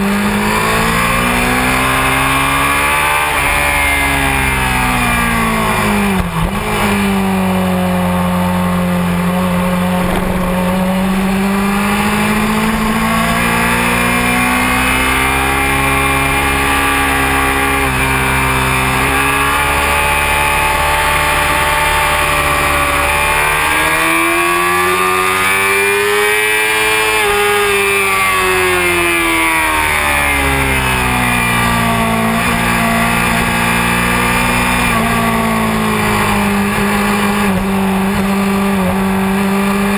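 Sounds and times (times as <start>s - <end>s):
motorcycle engine revving: 0.0s - 39.9s
wind rush: 9.2s - 14.1s.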